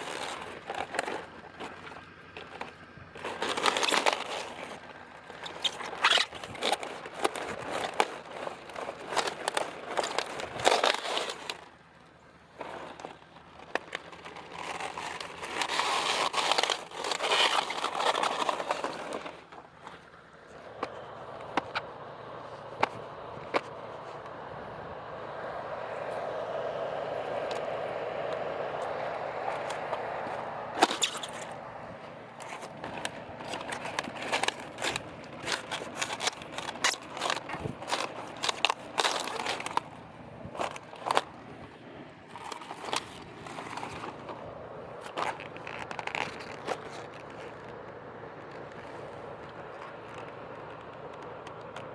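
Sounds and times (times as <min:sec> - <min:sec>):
steady background noise: 0:00.0 - 0:51.9
cabbage leaves crunching: 0:12.6 - 0:21.4, 0:26.0 - 0:47.6.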